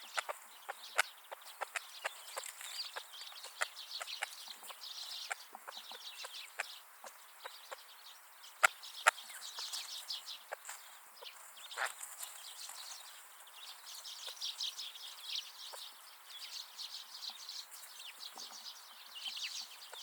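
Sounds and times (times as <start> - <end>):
beaks pecking at seed: 0.0 - 7.8
birds twittering and chirping: 0.0 - 20.0.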